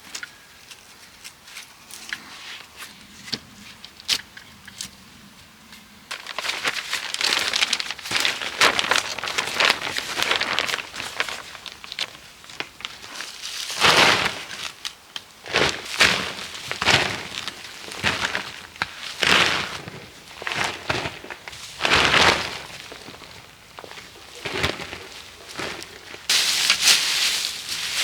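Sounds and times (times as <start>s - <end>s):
dry material rustling and crackling: 6.1s - 28.0s.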